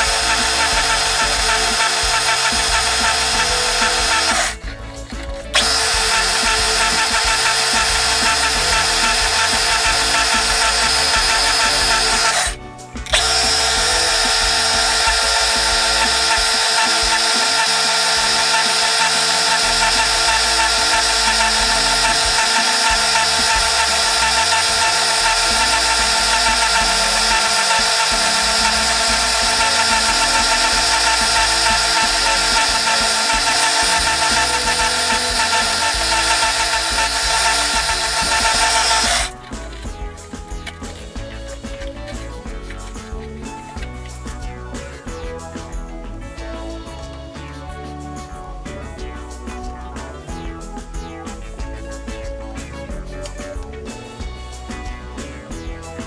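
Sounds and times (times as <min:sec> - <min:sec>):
lathe motor: 0:00.0 - 0:04.7, 0:05.5 - 0:39.4
lathe tool scraping resin: 0:13.1 - 0:39.4.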